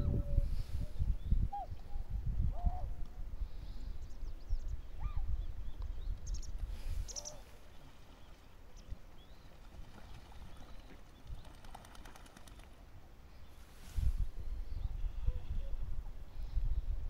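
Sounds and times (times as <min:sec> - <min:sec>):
faint calls and ticks: 0:05.7 - 0:12.8.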